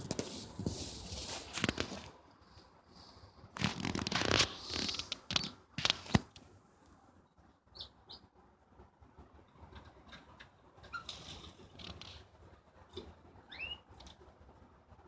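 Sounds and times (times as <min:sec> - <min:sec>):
bird chirping: 0:07.7 - 0:08.3, 0:13.4 - 0:14.0.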